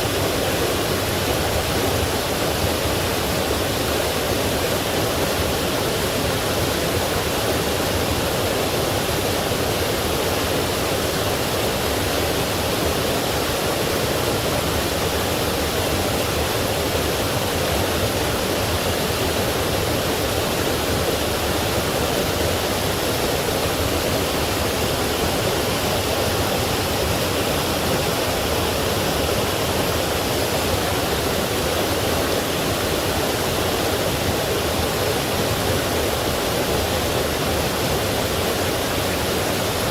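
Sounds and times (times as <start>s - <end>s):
stream rushing over small waterfalls: 0.0s - 39.9s.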